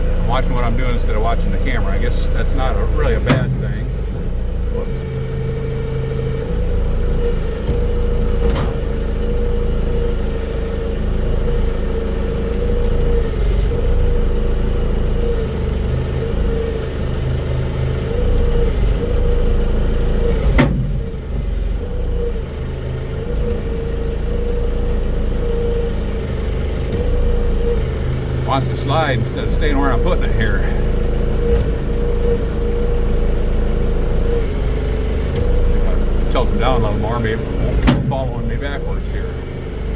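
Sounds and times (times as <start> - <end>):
diesel engine humming: 0.0 - 39.9
metallic clunks: 3.1 - 4.3, 8.4 - 9.2, 37.4 - 38.3.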